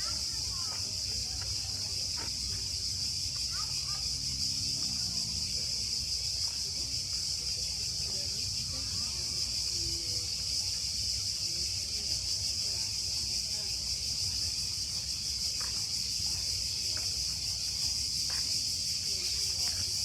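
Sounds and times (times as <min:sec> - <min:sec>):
cicadas buzzing: 0:00.0 - 0:20.0.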